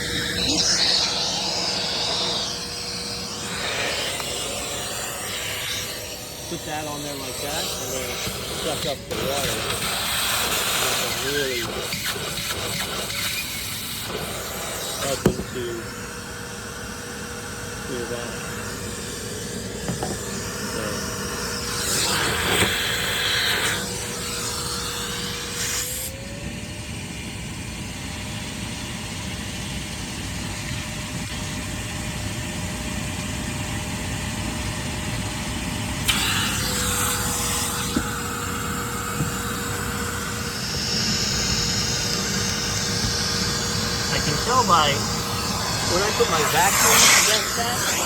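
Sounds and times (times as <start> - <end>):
shop vacuum suction rushing: 0.0 - 26.4, 36.0 - 48.0.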